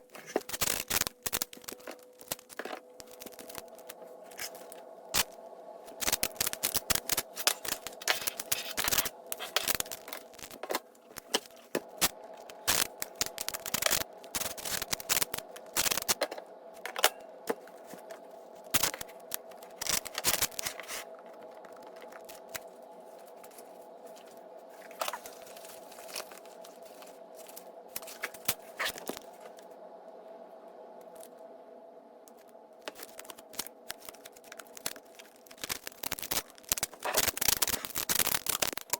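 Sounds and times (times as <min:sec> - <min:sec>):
steady hum: 0:00.0 - 0:38.9
small parts clicking and scraping: 0:06.0 - 0:22.7, 0:32.3 - 0:38.9.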